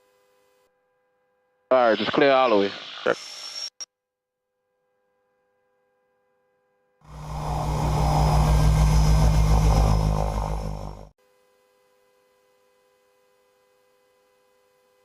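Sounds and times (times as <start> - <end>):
propeller plane engines pulsing: 7.1 - 11.1.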